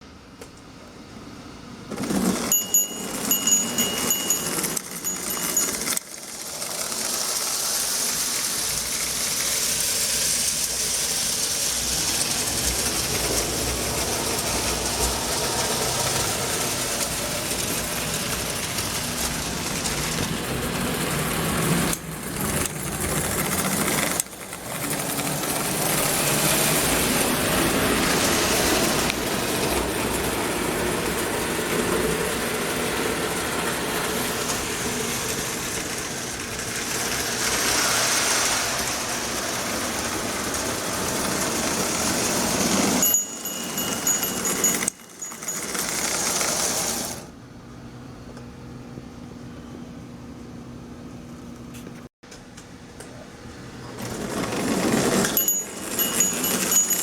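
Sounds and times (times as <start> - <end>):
toy train wheel clatter: 1.9 - 30.2, 34.4 - 47.3, 54.0 - 57.0
toy train motor whirring: 2.0 - 29.2, 35.3 - 47.3, 54.1 - 57.0.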